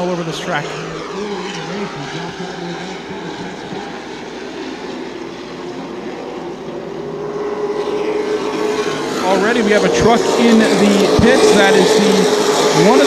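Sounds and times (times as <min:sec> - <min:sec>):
race truck engines: 0:00.0 - 0:13.0.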